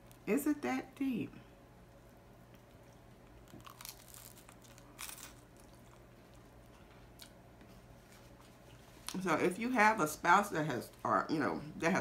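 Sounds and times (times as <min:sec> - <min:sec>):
biting and chewing sandwich: 0:02.4 - 0:09.2.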